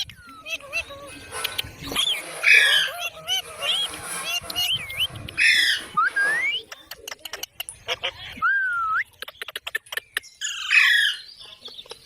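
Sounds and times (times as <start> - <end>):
parrot squawk: 0.4 - 4.7, 5.3 - 6.0.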